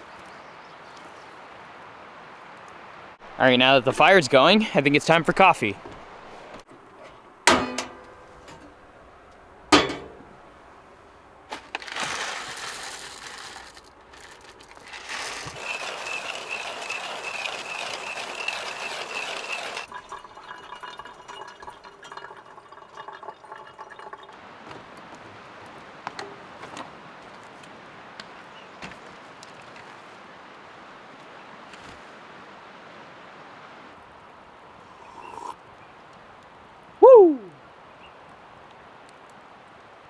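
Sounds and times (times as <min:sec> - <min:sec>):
glass clinking: 0:07.5 - 0:08.6, 0:09.7 - 0:10.4, 0:15.6 - 0:24.4
water pouring into container: 0:11.8 - 0:24.4.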